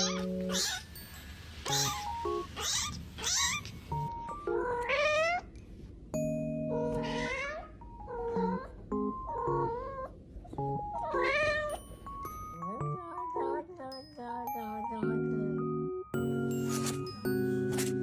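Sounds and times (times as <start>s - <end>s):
cat meowing: 0.0s - 0.9s, 1.7s - 3.9s, 4.6s - 5.5s, 6.7s - 10.2s, 10.9s - 11.8s
plucked background music: 0.0s - 1.0s, 1.7s - 2.8s, 3.9s - 5.2s, 6.2s - 18.0s.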